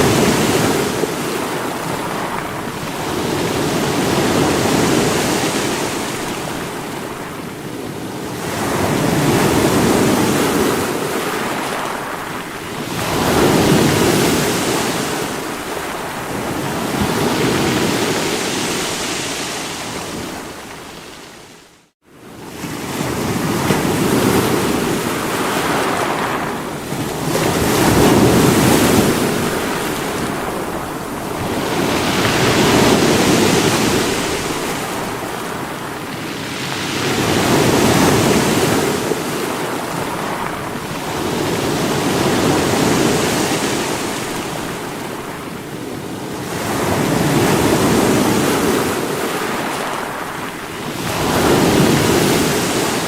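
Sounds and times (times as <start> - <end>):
sea waves breaking on rocks: 22.6 - 53.0.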